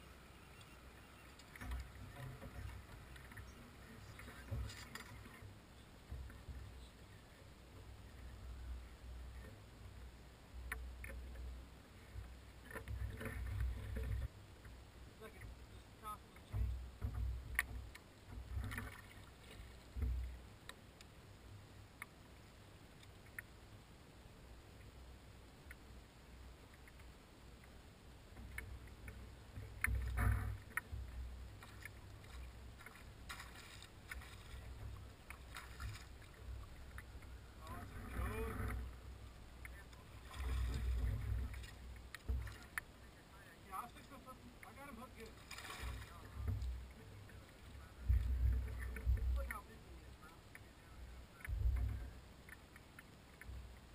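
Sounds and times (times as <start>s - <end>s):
water splashes: 0.0s - 23.6s, 26.6s - 53.9s
low steady rumble: 0.0s - 53.9s
wind rumble on microphone: 46.2s - 49.7s, 50.8s - 52.2s.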